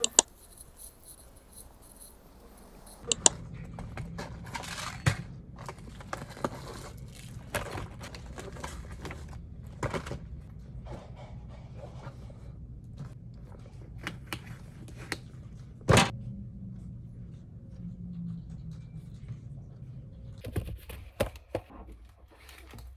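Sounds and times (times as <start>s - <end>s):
objects clicking and knocking: 0.0s - 11.2s
scraping and rustling: 0.0s - 16.2s
low hum: 0.0s - 20.8s.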